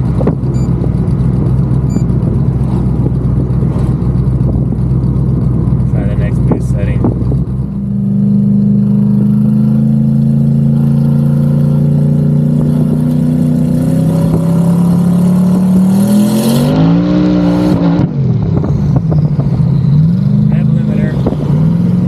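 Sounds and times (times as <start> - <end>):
engine revs rising: 13.6 - 22.0.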